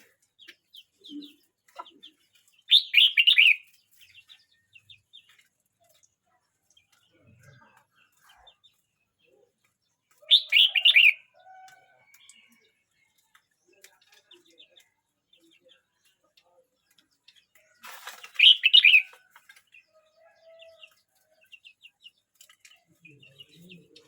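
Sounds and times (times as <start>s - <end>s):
brief rustle: 17.6s - 18.7s.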